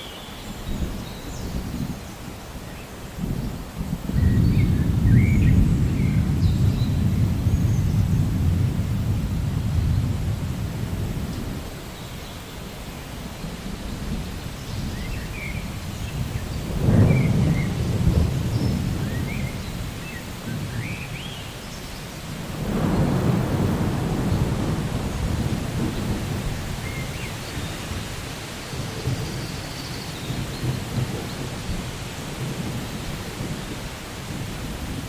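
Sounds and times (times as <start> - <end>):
steady rain: 0.0 - 35.0
thunder rolling: 3.2 - 11.8, 13.8 - 20.8, 22.4 - 28.2.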